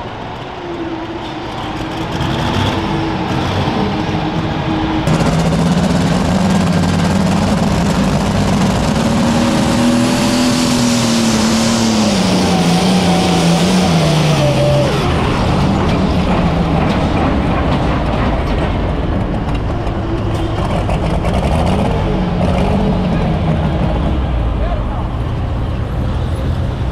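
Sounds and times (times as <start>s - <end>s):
tractor diesel engine running hard: 0.0s - 26.9s.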